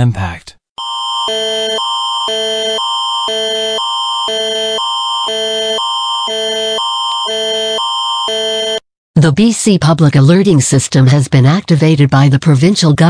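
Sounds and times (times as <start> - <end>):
steady high tone: 0.8 - 8.8
alternating two-tone alert chords: 1.3 - 8.8.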